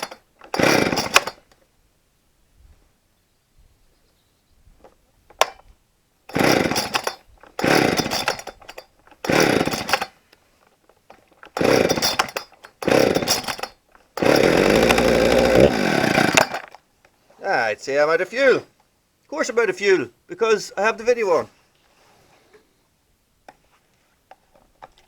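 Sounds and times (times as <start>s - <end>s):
chainsaw engine sputtering: 0.0s - 1.6s, 6.3s - 10.2s, 11.1s - 16.8s.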